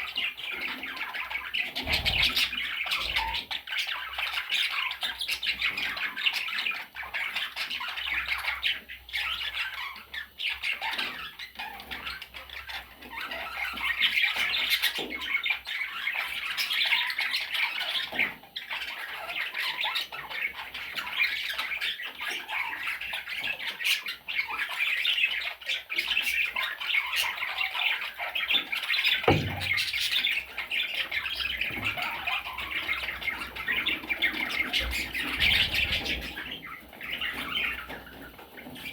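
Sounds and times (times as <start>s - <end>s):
budgerigars chattering: 0.0s - 38.2s
low thump: 29.2s - 30.2s.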